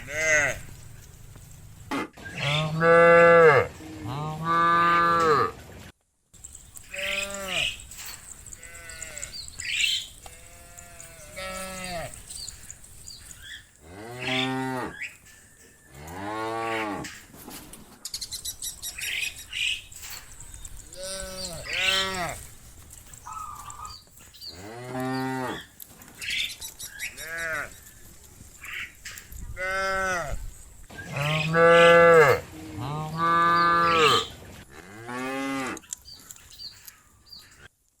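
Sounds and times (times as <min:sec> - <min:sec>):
cattle mooing: 0:00.0 - 0:00.7, 0:02.4 - 0:05.5, 0:06.9 - 0:07.8, 0:08.6 - 0:09.4, 0:10.2 - 0:12.3, 0:13.9 - 0:15.1, 0:31.1 - 0:35.8.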